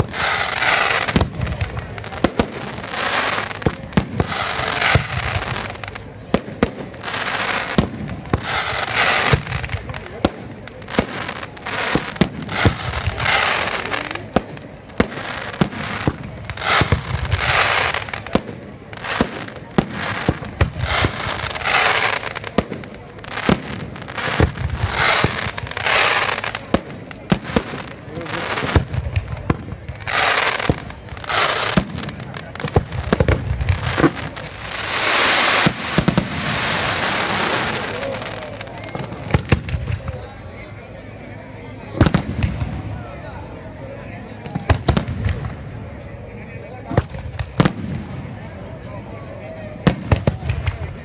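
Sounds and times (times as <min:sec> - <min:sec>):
fireworks hiss: 0:00.0 - 0:40.1
fireworks bangs: 0:00.0 - 0:40.4, 0:41.9 - 0:43.4, 0:44.4 - 0:51.0.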